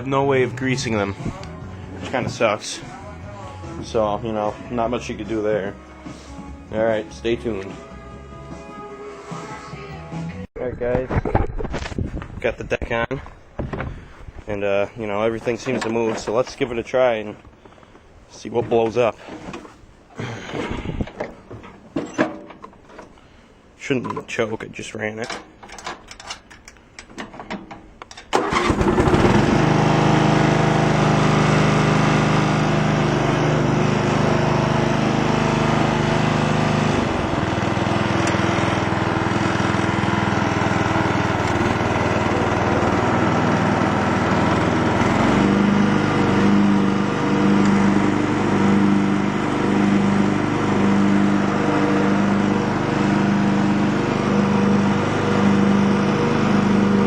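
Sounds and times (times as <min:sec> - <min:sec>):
lawn tractor engine running: 0:28.3 - 0:57.0.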